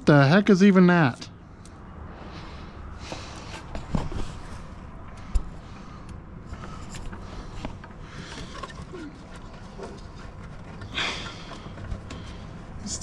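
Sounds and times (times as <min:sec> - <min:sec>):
rustling scrape: 0:02.3 - 0:04.9.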